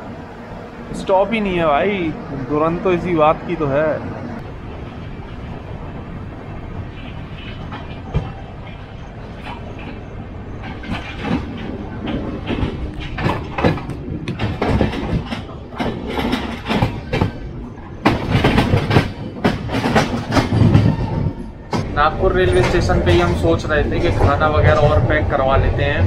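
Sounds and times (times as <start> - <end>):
moving train rushing: 0.0 - 26.0
wheels clattering over rail joints: 3.0 - 26.0.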